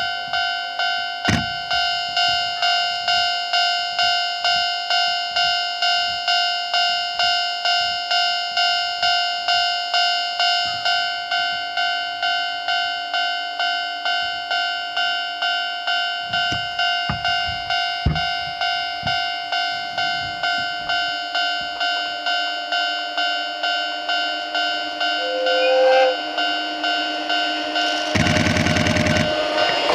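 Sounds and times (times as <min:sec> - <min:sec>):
level-crossing alarm bell ringing: 0:00.0 - 0:29.9
low thumps and rumbles: 0:01.3 - 0:02.0, 0:16.3 - 0:21.1.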